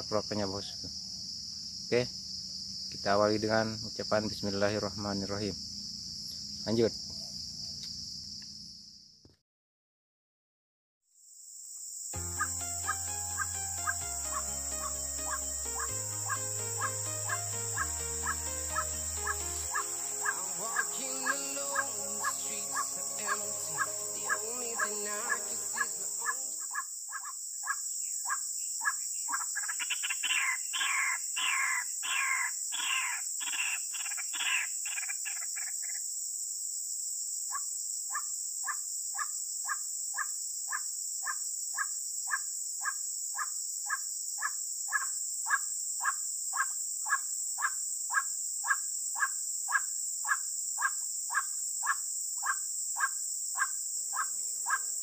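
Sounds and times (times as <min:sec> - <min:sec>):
insects buzzing: 0:00.0 - 0:09.2, 0:11.2 - 0:55.0
music: 0:12.2 - 0:26.6
waterhen calls: 0:12.4 - 0:27.3, 0:29.3 - 0:35.4, 0:44.9 - 0:55.0.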